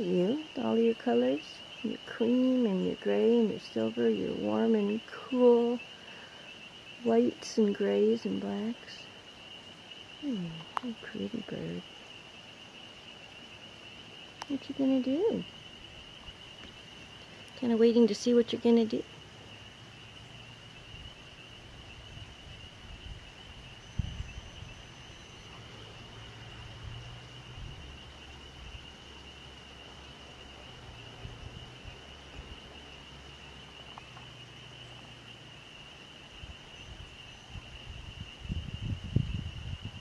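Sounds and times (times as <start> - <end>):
wind rumble on microphone: 20.8 - 25.6, 26.3 - 28.9, 30.7 - 32.8, 36.3 - 40.0.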